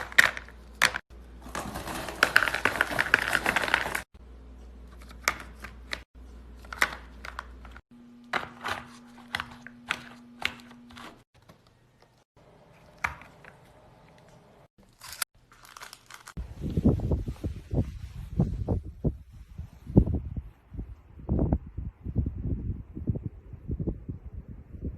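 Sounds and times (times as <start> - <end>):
crisp crunches and crackles: 14.8 - 16.8.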